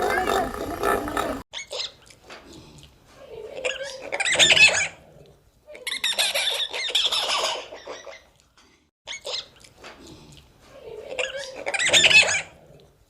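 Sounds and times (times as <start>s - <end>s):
high-pitched animal squeaks: 3.7s - 5.0s, 5.7s - 8.3s, 11.2s - 12.5s.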